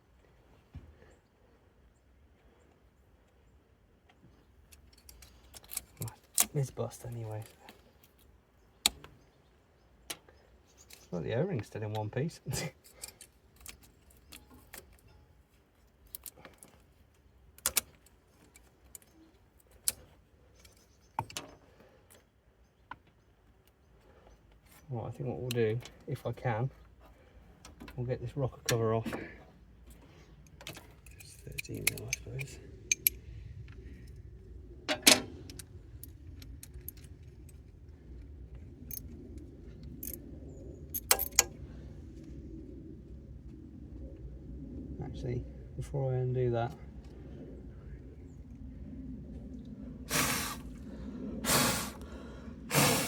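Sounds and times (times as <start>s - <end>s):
metal tools clinking: 41.0s - 41.5s.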